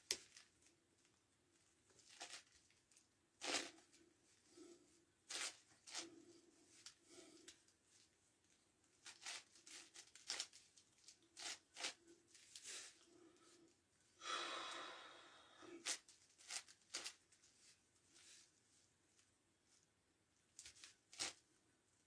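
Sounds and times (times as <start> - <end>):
rattle of quick cube turns: 9.0 - 10.6, 20.6 - 21.4.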